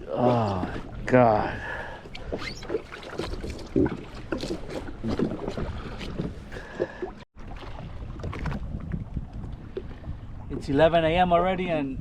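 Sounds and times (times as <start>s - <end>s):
water slapping against hull: 2.0s - 10.8s
wind on microphone: 7.5s - 12.0s.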